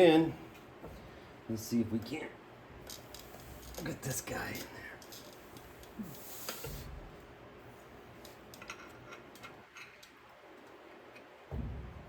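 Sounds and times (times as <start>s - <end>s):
metal parts clicking and tapping: 8.2s - 11.3s.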